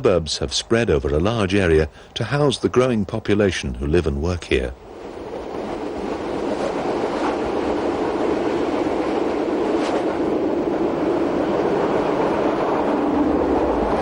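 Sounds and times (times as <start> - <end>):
train wheels rumbling on track: 3.8 - 14.0.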